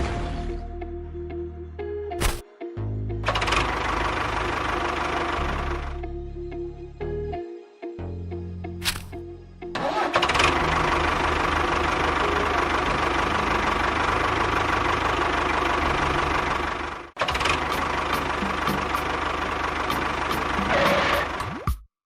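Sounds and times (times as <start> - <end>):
small motor chugging and whining: 17.2 - 21.5.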